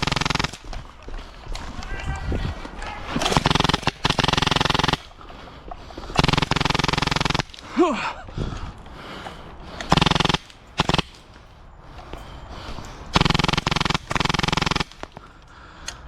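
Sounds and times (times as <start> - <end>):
airsoft gun rapid clicking bursts: 0.0 - 0.9, 3.2 - 5.4, 6.1 - 7.7, 9.8 - 11.3, 13.1 - 15.4.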